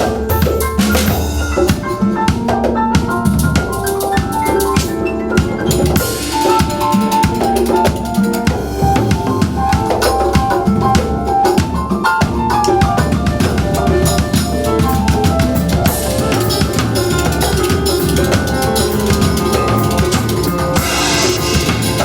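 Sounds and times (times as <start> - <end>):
band music with drum kit: 0.0 - 22.0
cymbal crash: 20.2 - 22.0.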